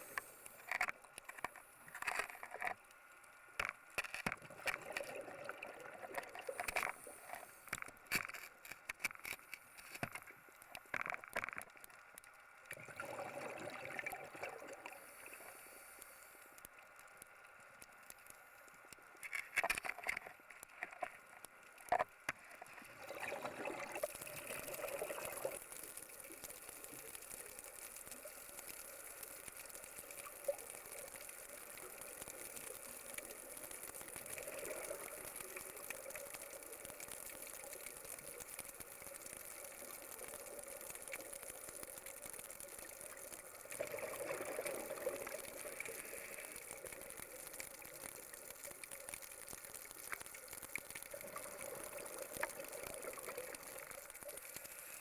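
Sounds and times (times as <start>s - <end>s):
water gushing and bubbling: 4.0s - 8.5s, 12.6s - 15.7s, 19.6s - 55.0s.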